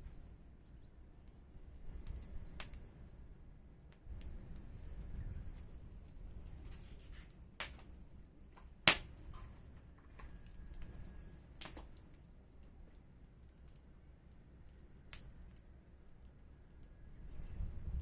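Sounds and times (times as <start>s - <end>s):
wood fire crackling: 0.0s - 18.0s
faint low rumble: 7.9s - 18.0s.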